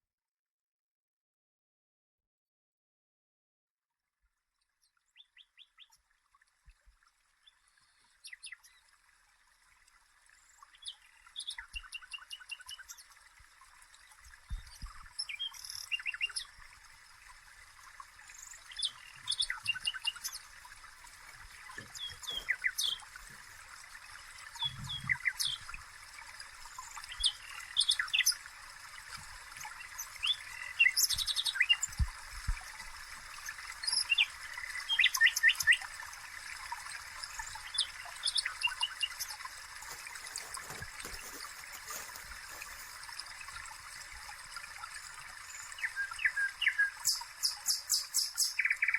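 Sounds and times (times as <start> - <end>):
birds chirping: 18.3 - 25.9, 26.6 - 28.5, 29.3 - 32.2, 33.3 - 35.9, 37.4 - 43.0.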